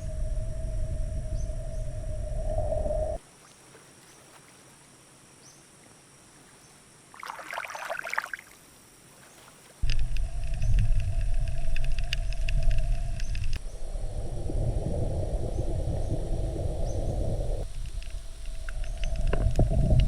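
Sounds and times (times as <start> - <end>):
low rumble: 0.0 - 3.2, 9.8 - 20.0
steady hum: 0.0 - 3.2, 9.8 - 20.0
crackling burst: 9.8 - 13.7.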